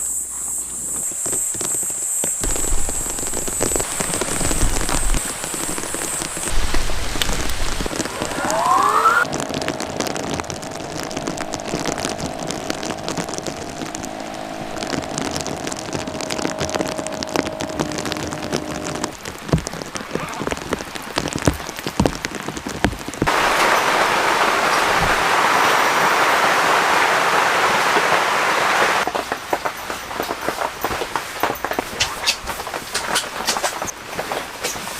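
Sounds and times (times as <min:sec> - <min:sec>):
faint steady hum: 0:00.0 - 0:19.3
raindrops tapping: 0:00.8 - 0:34.9
heavy rain rushing: 0:01.2 - 0:34.9.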